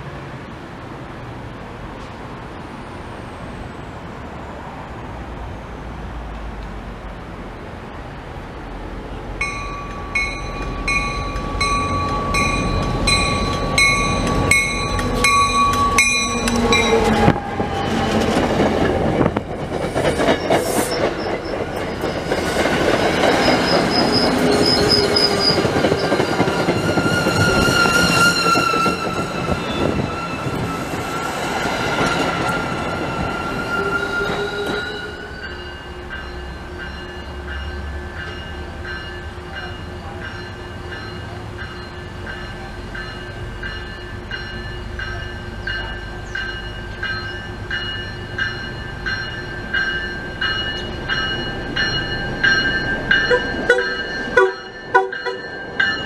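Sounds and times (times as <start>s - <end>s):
train passing close by: 0.0s - 56.0s
rhythmic bell ringing: 9.4s - 17.1s, 35.4s - 56.0s
steel wheels squealing: 9.9s - 36.1s.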